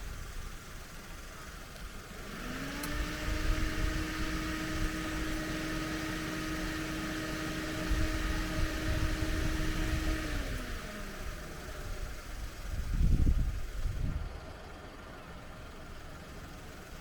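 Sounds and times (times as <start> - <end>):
engine revving under load: 2.1 - 14.3.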